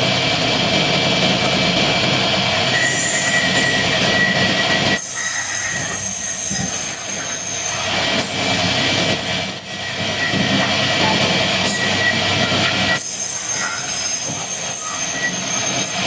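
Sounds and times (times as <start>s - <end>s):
loud machinery noise: 0.0s - 16.0s
high-pitched squeal: 2.7s - 7.9s, 13.0s - 16.0s.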